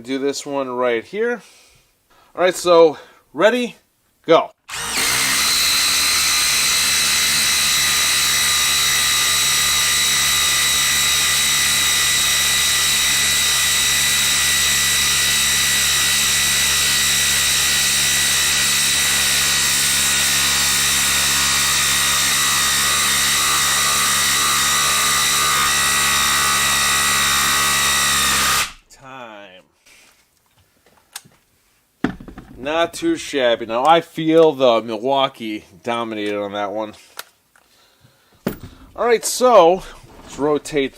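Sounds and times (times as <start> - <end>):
impact driver hammering: 38.4 - 39.0.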